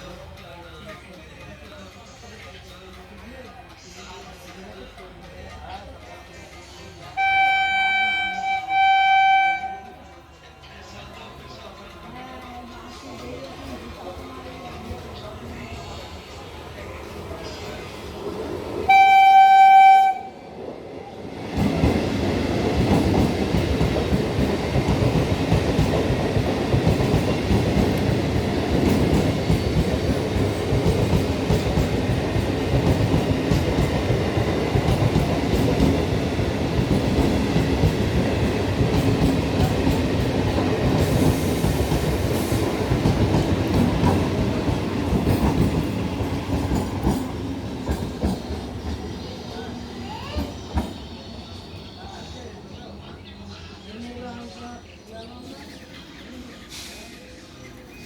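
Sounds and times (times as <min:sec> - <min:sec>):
train rumbling: 0:00.0 - 0:54.9
train horn: 0:07.2 - 0:10.1, 0:18.9 - 0:20.4.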